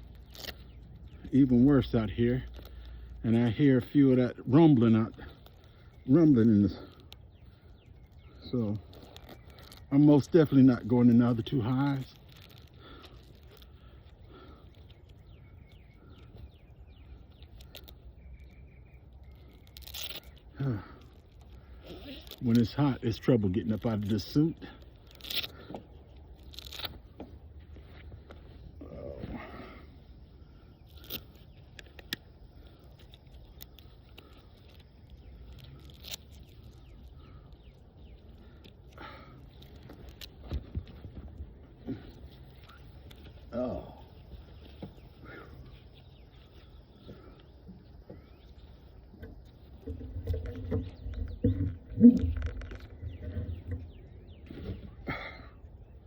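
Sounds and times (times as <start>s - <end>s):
birds chirping: 0.0s - 56.0s
low background noise: 0.0s - 56.0s
sharp clicks: 30.8s - 39.0s.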